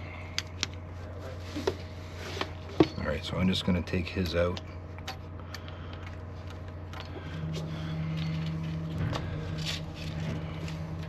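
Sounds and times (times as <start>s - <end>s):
low mechanical hum: 0.0s - 11.0s
higher hum: 4.7s - 11.0s.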